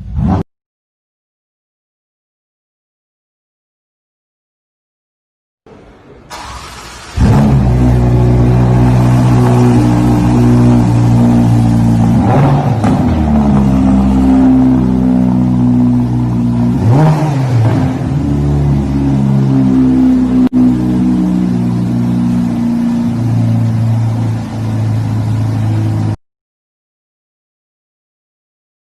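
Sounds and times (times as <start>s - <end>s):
car engine fast idle: 6.3s - 11.1s.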